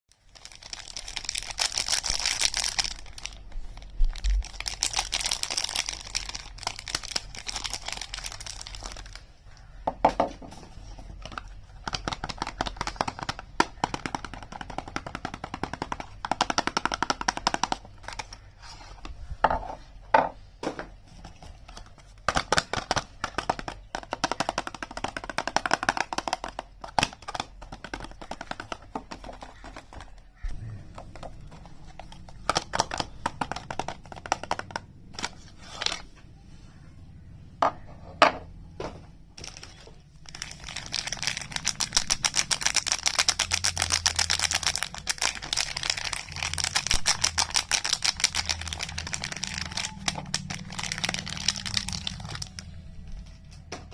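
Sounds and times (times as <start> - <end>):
packaging crinkling: 0.1 - 9.8, 21.3 - 36.1, 39.4 - 53.8.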